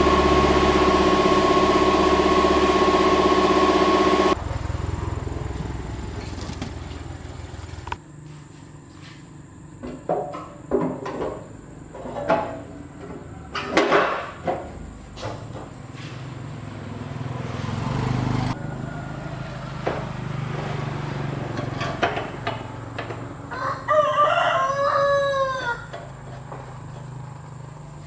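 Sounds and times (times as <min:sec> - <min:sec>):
engine running: 0:00.0 - 0:08.0, 0:15.5 - 0:23.5.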